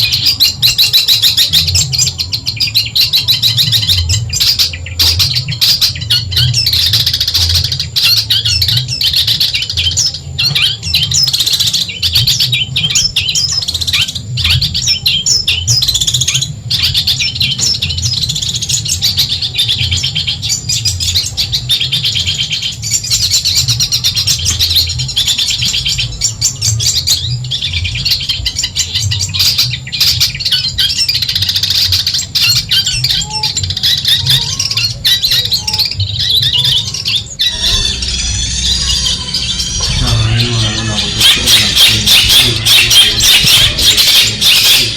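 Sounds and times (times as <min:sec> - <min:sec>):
bird singing high chattering notes: 0:00.0 - 0:44.9
low steady hum: 0:37.3 - 0:44.9.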